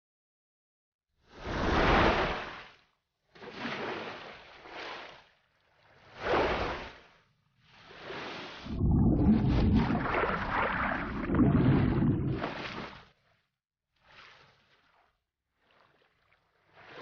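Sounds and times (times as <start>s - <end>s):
water rushing and splashing: 8.6s - 13.0s.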